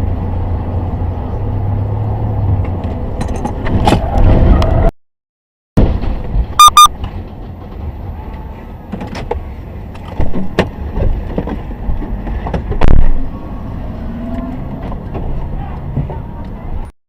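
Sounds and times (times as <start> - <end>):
road and engine rumble: 0.0 - 4.9, 5.8 - 16.9
short high-pitched beeps: 6.6 - 7.0.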